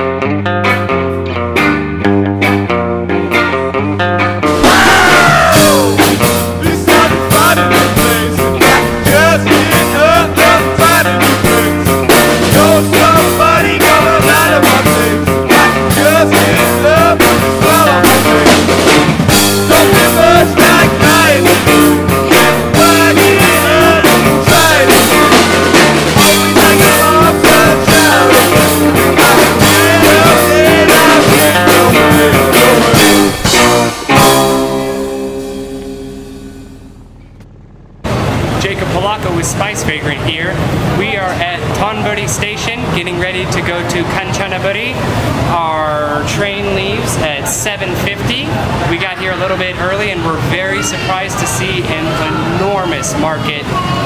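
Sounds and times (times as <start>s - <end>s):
rock music: 0.0s - 39.2s.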